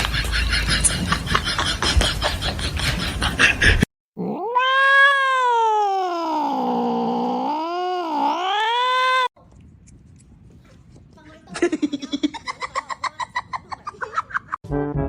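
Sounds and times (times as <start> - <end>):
cat yowling: 4.2 - 9.3.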